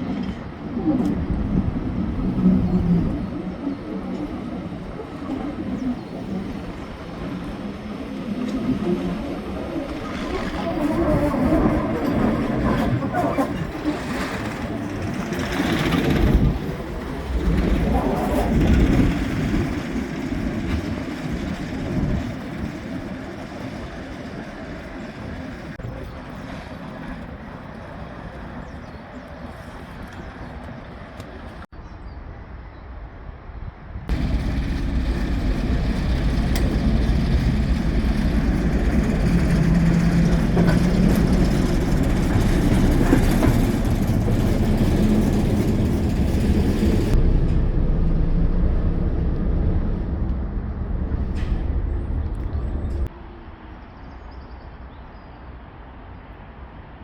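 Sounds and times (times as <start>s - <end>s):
train rumbling: 0.0s - 31.7s, 34.0s - 57.0s.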